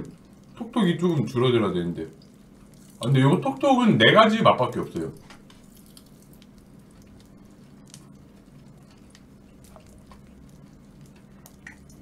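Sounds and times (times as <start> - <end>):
small crackles and clicks: 0.0 - 3.8, 4.5 - 12.0
steady low hum: 0.0 - 12.0
chewing crunchy food: 2.1 - 3.2, 5.2 - 12.0.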